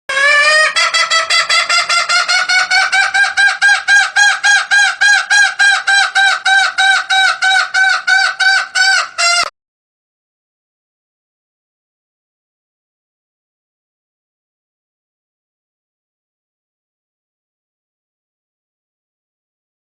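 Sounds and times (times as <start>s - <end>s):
junglefowl clucking: 0.1s - 9.5s.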